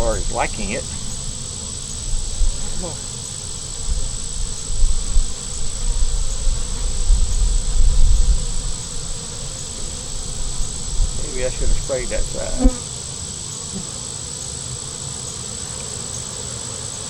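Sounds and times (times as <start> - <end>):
bees buzzing: 0.0 - 17.0
low rumbling on microphone: 3.8 - 8.8.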